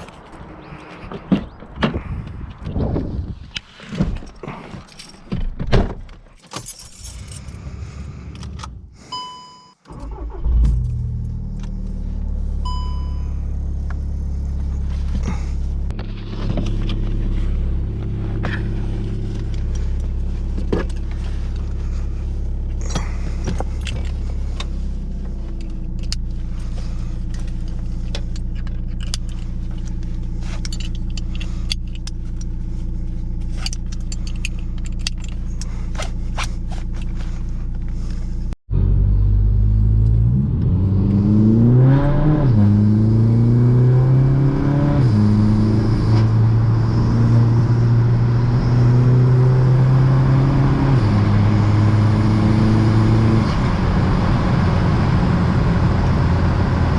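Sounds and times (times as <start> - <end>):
keys clicking and knocking: 4.2 - 7.6
diesel engine starting and idling: 7.2 - 44.2
short beeps: 9.1 - 9.8, 12.6 - 13.4.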